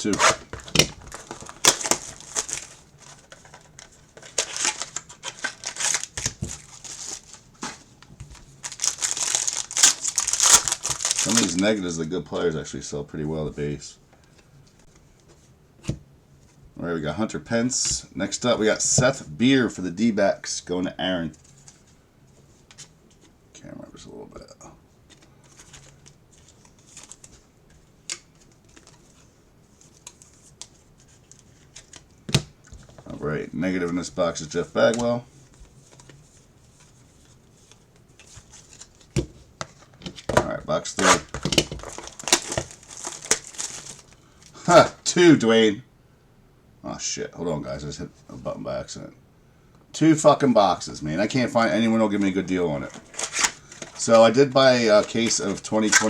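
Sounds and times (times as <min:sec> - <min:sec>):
packaging crinkling and tearing: 0:00.0 - 0:11.8, 0:37.6 - 0:44.6, 0:52.8 - 0:56.0.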